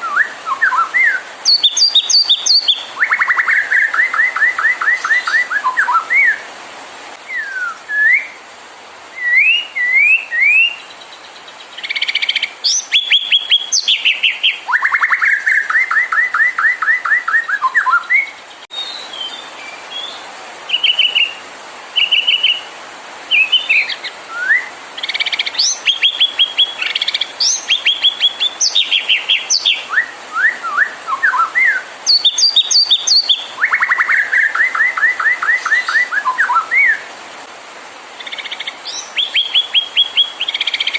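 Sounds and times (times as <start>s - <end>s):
songbird whistled song: 0.0s - 6.5s, 7.2s - 8.4s, 9.1s - 21.4s, 22.0s - 22.7s, 23.3s - 37.1s, 38.2s - 40.9s.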